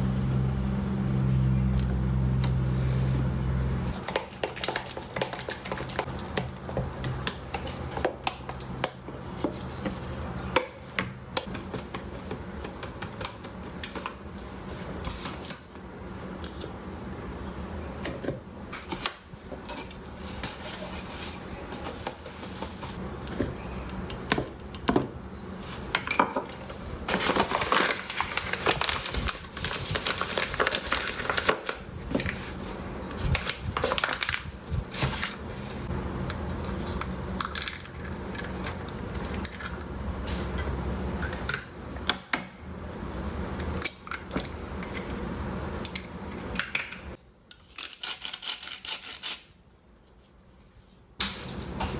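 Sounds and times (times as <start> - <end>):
steady low hum: 0.0 - 4.5, 31.8 - 47.2.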